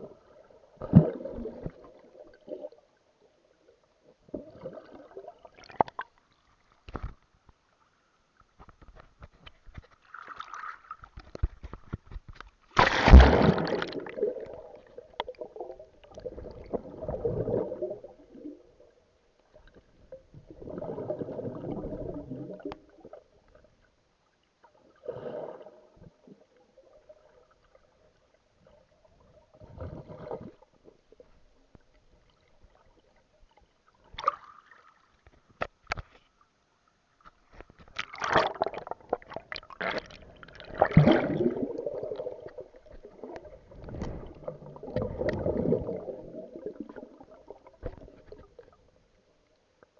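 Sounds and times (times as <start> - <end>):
sea water sloshing and splashing: 9.3 - 12.0, 12.7 - 18.8, 28.8 - 35.5, 37.5 - 48.9.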